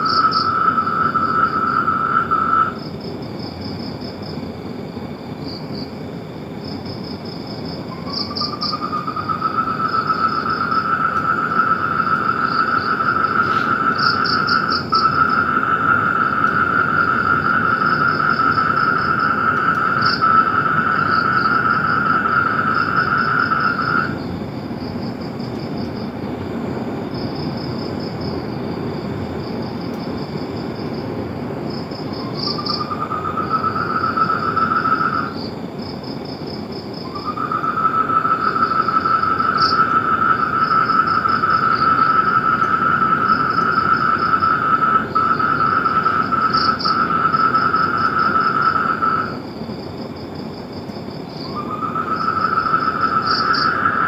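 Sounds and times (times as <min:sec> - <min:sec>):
frog trilling: 0:00.0 - 0:02.8, 0:07.9 - 0:24.3, 0:32.0 - 0:35.5, 0:36.9 - 0:49.4, 0:51.3 - 0:54.0
insects chirping: 0:00.0 - 0:54.0.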